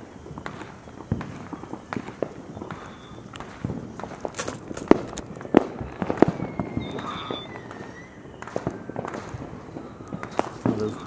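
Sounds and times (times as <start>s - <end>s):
thin high whistle: 0.0s - 3.4s, 5.8s - 11.0s
fireworks bangs and crackles: 0.0s - 11.0s.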